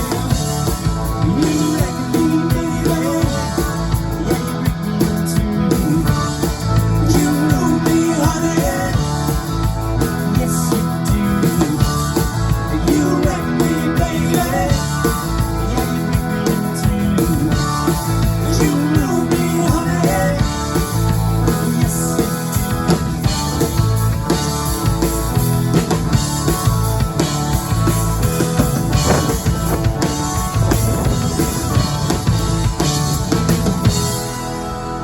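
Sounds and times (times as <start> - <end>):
rock band playing live: 0.0 - 35.0.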